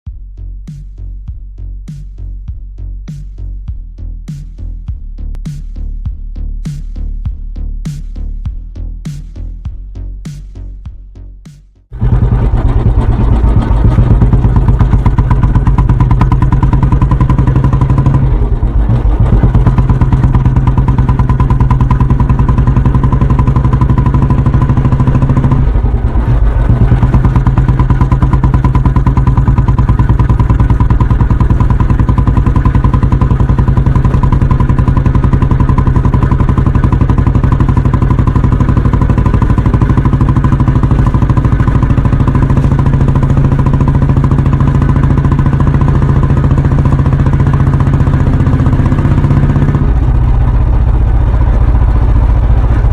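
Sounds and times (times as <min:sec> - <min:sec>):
motorcycle engine thumping: 0:11.9 - 0:52.9.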